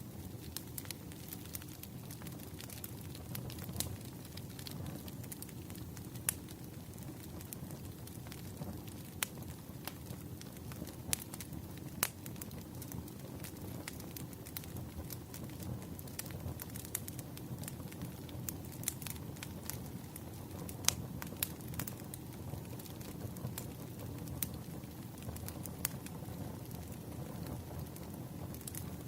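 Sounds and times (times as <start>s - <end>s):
fireplace crackling and popping: 0.0s - 29.0s.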